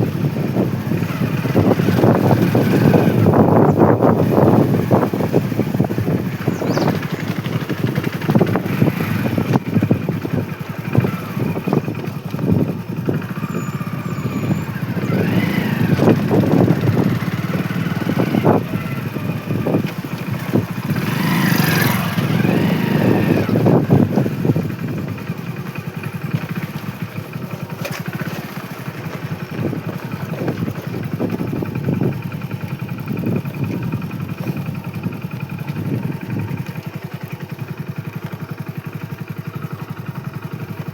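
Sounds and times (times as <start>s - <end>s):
vehicles passing: 0.0s - 27.4s
motorcycle engine running: 0.0s - 40.9s.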